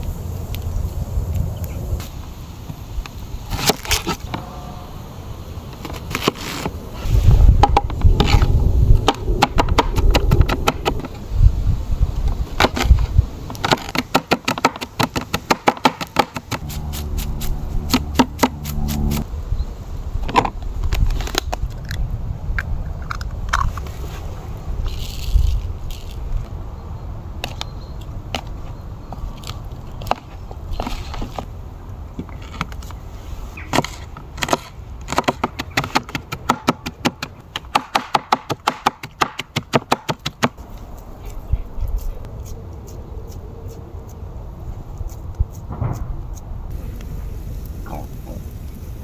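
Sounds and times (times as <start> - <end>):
steady low hum: 16.6 - 19.6.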